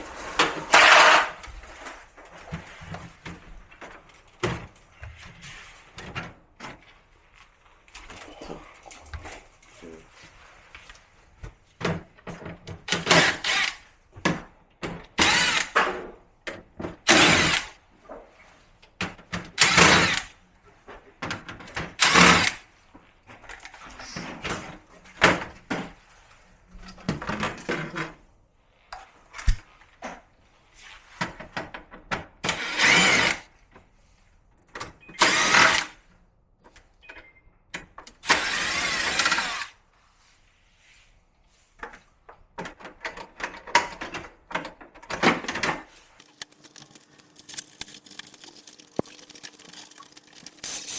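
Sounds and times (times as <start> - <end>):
drill-driver whining: 12.9 - 13.8, 15.2 - 15.8, 17.1 - 17.7, 19.6 - 20.3, 22.0 - 22.6, 32.5 - 33.4, 35.2 - 35.9, 38.2 - 39.7, 46.2 - 50.9.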